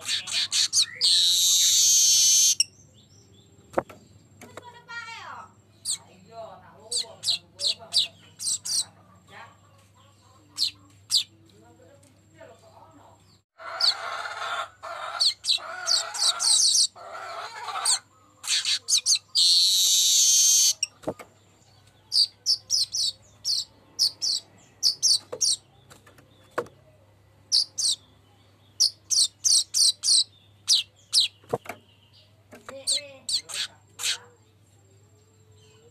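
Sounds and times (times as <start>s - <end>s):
harsh bird buzz: 0.0s - 2.7s, 15.0s - 21.0s
bird singing wheezy chattering song: 0.0s - 4.3s, 5.1s - 11.4s, 15.0s - 34.6s
high ticking bird notes: 0.0s - 9.0s, 22.1s - 25.7s, 27.5s - 34.2s.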